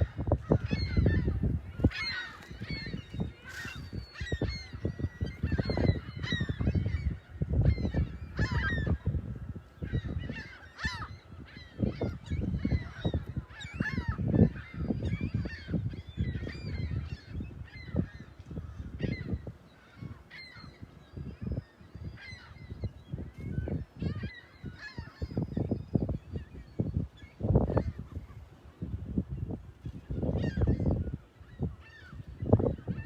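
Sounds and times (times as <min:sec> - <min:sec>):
gulls calling: 0:00.0 - 0:33.0.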